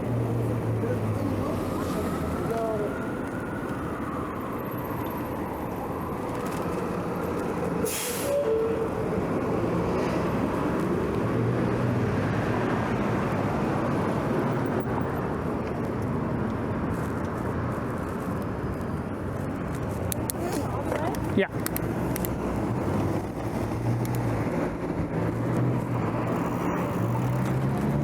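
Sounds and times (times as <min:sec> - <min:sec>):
vehicle passing: 0:00.0 - 0:04.5, 0:18.8 - 0:28.0
road and traffic noise: 0:00.0 - 0:28.0
short sharp hiss: 0:07.9 - 0:08.4.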